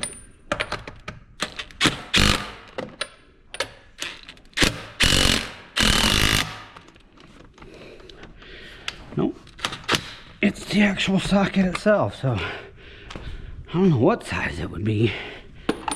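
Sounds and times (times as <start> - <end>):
impact wrench hammering: 1.7 - 3.0, 4.6 - 7.0, 9.6 - 10.4.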